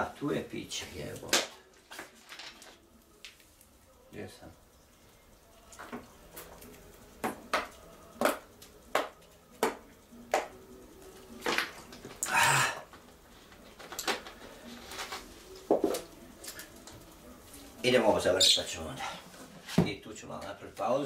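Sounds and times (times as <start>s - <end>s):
objects knocking and clattering: 13.5s - 16.1s.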